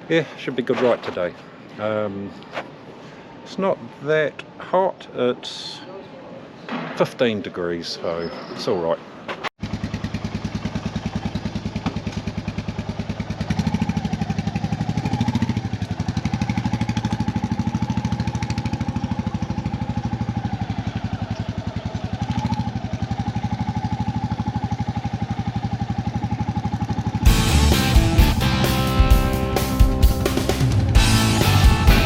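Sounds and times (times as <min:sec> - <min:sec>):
motorcycle engine running: 0:09.6 - 0:32.0.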